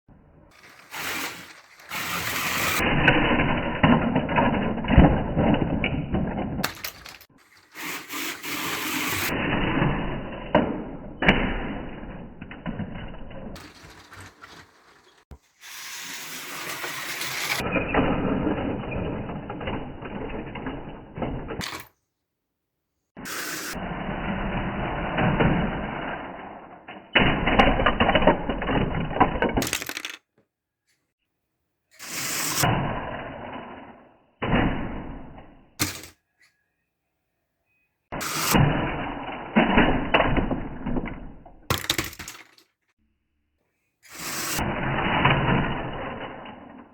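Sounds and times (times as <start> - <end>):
slot cars running on track: 0.5 - 2.9
plastic bricks clattering: 0.5 - 9.2, 12.0 - 17.6, 27.7 - 30.4, 39.6 - 42.8.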